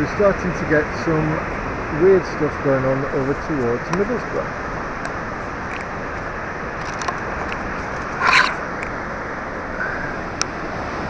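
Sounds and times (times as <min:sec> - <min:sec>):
short scraping rustle: 0:07.8 - 0:08.6.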